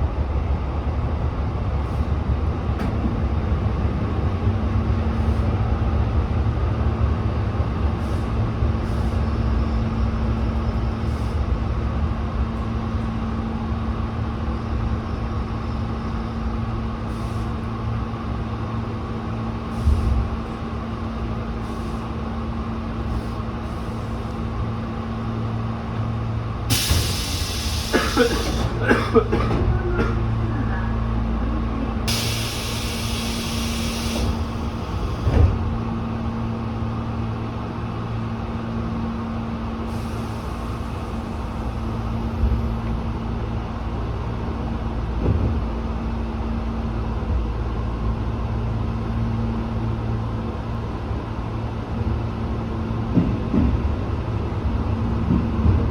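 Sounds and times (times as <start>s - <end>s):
train running noise: 0.0s - 55.9s
electric train equipment hum: 2.2s - 55.9s
train thump: 2.7s - 3.7s, 19.6s - 22.4s, 23.0s - 30.4s, 32.1s - 36.4s, 45.1s - 45.8s, 52.9s - 55.9s
compressed air hiss: 26.7s - 28.8s, 32.1s - 35.0s.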